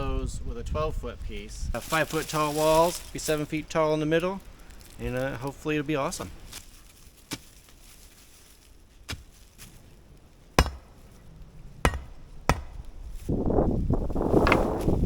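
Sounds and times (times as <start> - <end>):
rough continuous noise: 1.0 - 15.0
hand tool striking: 10.6 - 11.2, 11.8 - 13.0.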